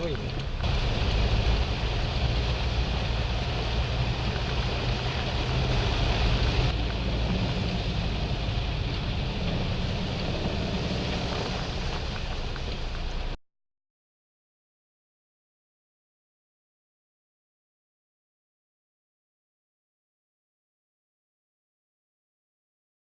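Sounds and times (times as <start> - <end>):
torrential rain rushing: 0.0 - 13.4.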